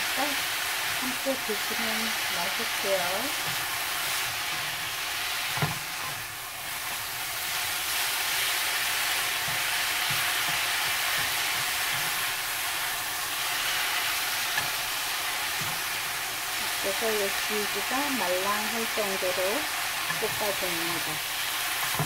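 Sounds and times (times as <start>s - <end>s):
greens sizzling in a pan: 0.0s - 22.0s
utensils knocking on pan: 9.4s - 12.2s, 21.8s - 22.0s.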